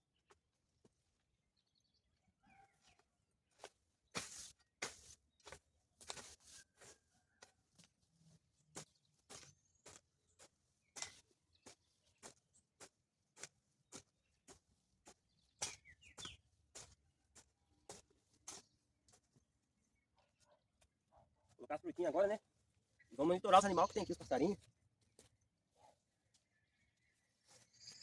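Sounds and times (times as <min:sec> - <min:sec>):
faint bird chirps: 0:22.9 - 0:24.6, 0:25.8 - 0:28.0.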